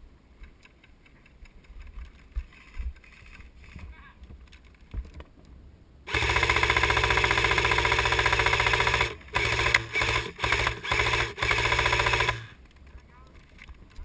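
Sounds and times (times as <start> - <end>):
airsoft gun firing full auto: 6.1 - 12.6.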